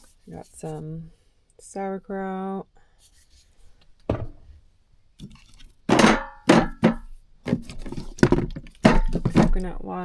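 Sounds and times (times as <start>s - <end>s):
jars and containers clattering: 5.2s - 9.8s.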